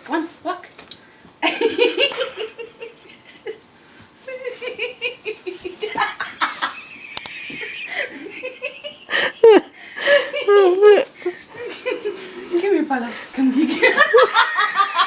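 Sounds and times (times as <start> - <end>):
people laughing: 4.3 - 11.0, 13.6 - 15.0.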